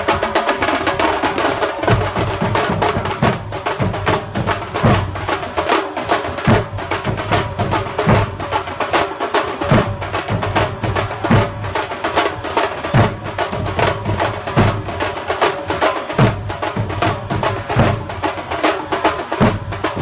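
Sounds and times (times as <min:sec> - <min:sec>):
deep drum strokes: 0:00.0 - 0:05.4
fast dense drumming: 0:00.0 - 0:20.0.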